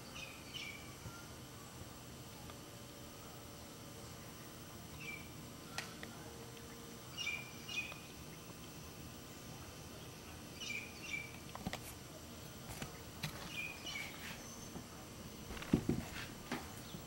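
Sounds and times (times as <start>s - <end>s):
outdoor hiss: 0.0s - 17.0s
bird chirps: 5.0s - 5.3s, 7.1s - 8.1s, 10.5s - 11.4s.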